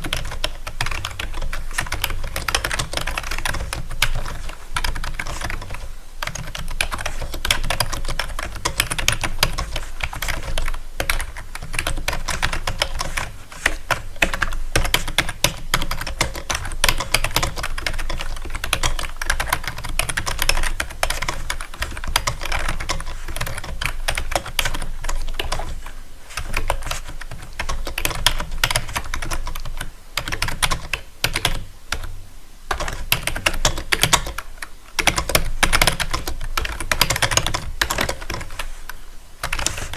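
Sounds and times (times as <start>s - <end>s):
rapid clicking and tapping: 0.0s - 39.9s.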